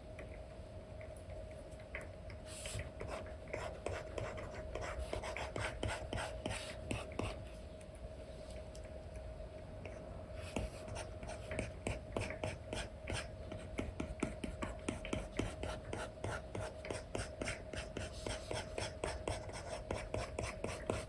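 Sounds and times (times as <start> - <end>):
faint steady hum: 0.0 - 21.0
stylus scratching on screen: 10.5 - 21.0.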